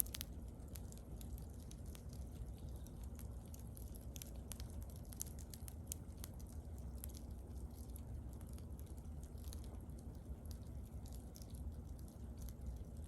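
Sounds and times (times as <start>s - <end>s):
bonfire crackling and popping: 0.0s - 13.0s.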